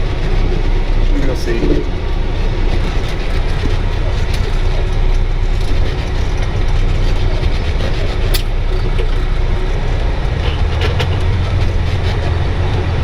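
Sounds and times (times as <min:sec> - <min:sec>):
diesel engine rumbling: 0:00.0 - 0:13.0
sharp click: 0:08.3 - 0:09.3.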